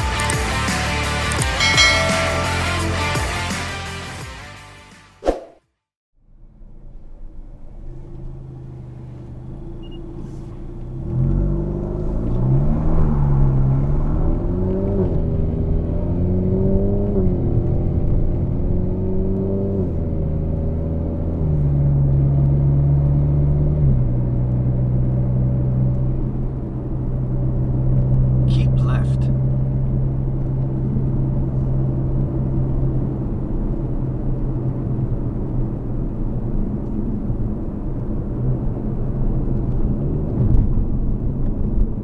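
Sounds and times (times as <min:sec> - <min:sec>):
car engine accelerating: 0:06.9 - 0:42.0.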